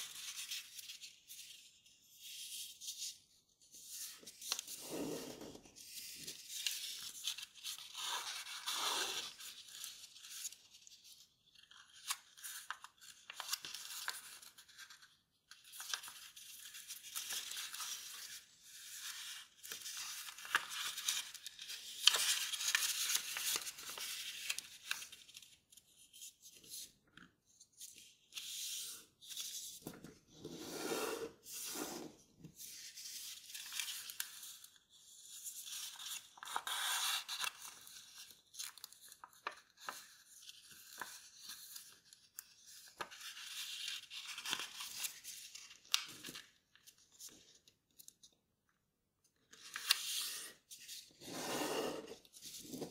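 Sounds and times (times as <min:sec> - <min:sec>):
paper rustling and crinkling: 0:04.0 - 0:27.3, 0:32.5 - 0:48.2, 0:49.5 - 0:51.2.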